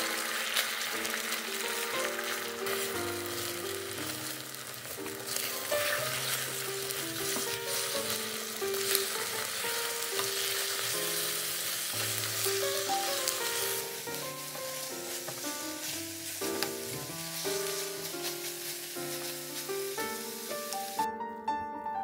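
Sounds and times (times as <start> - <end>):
food sizzling in a frying pan: 0.0 - 21.1
light background music: 0.0 - 22.0
spatula scraping a pan: 5.3 - 6.6.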